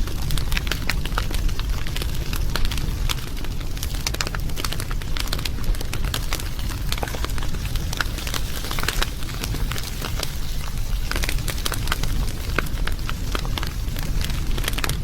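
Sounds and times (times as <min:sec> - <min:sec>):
low rumble of fire: 0:00.0 - 0:15.0
wood fire crackling and popping: 0:00.0 - 0:15.0.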